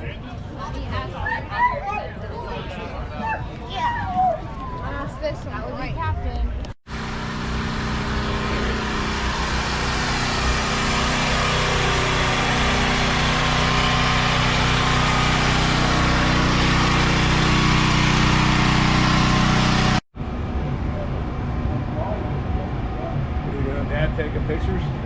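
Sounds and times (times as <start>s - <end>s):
hot rod engine idling: 6.9s - 20.0s.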